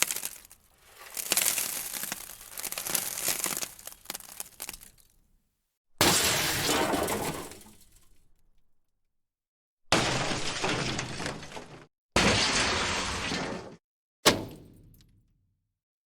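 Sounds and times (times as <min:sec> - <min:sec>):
breaking crashes: 0:00.0 - 0:05.1, 0:06.0 - 0:08.0, 0:09.9 - 0:13.8
clattering debris: 0:00.0 - 0:05.1, 0:06.0 - 0:08.1, 0:09.9 - 0:13.8.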